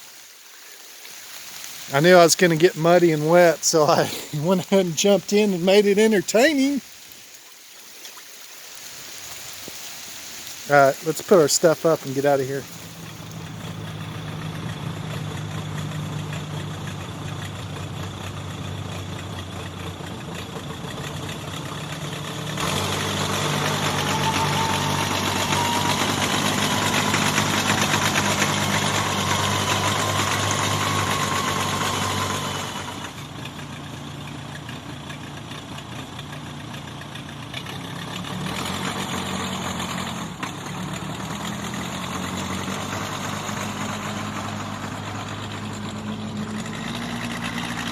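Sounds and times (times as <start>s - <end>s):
engine idling: 10.6s - 47.9s.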